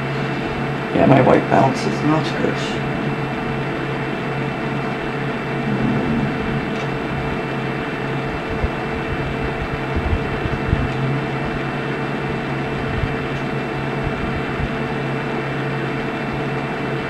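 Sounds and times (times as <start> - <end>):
electrical hum and hiss: 0.0 - 16.6
soft low bumps: 5.4 - 7.5.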